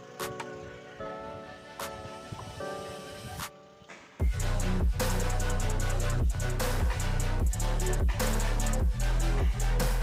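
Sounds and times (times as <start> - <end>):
electronic music with heavy bass: 4.2 - 10.0.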